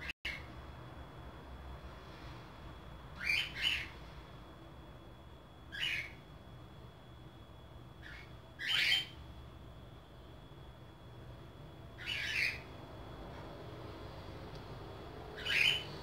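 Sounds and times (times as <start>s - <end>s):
bird squawking: 3.2s - 4.0s, 5.7s - 6.2s, 8.0s - 9.2s, 12.0s - 12.7s, 15.4s - 16.0s.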